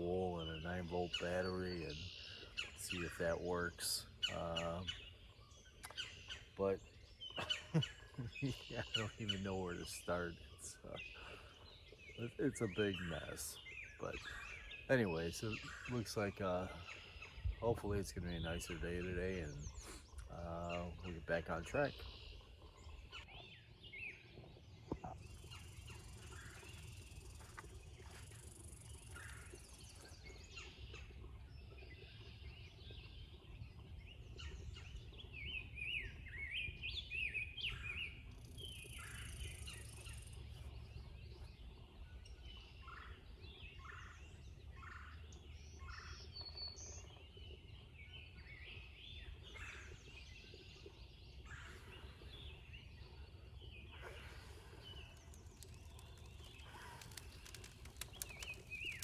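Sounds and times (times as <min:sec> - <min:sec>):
birds calling and singing: 0:00.0 - 0:59.0
rattling bird calls: 0:54.6 - 0:59.0.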